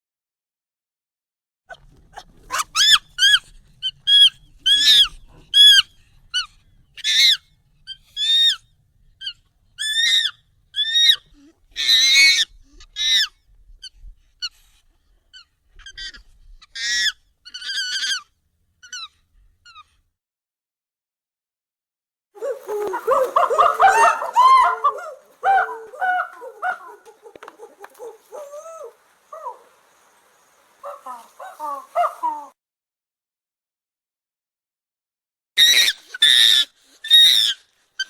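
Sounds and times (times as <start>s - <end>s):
high-pitched monkey calls: 1.7s - 8.6s, 9.2s - 14.6s, 15.3s - 19.9s, 22.4s - 30.1s, 30.8s - 32.6s, 35.6s - 38.0s.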